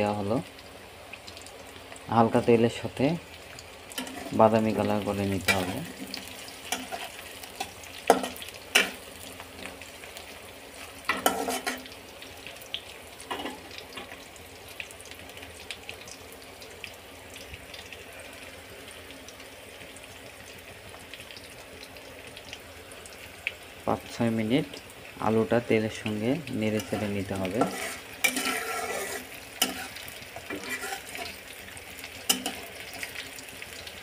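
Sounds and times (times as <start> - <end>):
potatoes and onions sizzling in oil: 0.0 - 34.0
metal spatula scraping pan: 4.0 - 4.4, 5.5 - 9.0, 11.1 - 11.8, 26.8 - 31.4.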